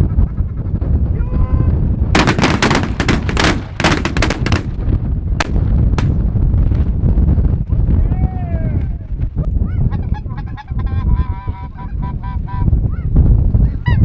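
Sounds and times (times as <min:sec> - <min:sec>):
wind rumble on microphone: 0:00.0 - 0:14.0
shotgun blasts: 0:02.2 - 0:06.2.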